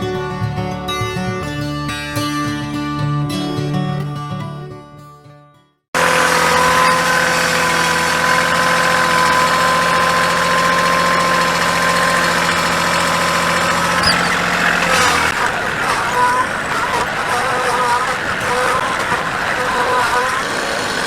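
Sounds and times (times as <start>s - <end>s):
engine running with whine: 6.0s - 21.0s.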